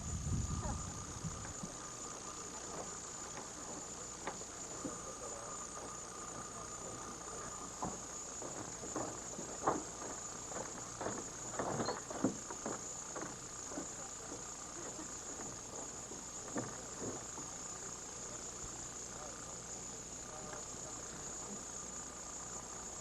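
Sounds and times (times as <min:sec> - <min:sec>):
crickets trilling: 0:00.0 - 0:23.0
soft knocks and rustles: 0:07.7 - 0:17.5.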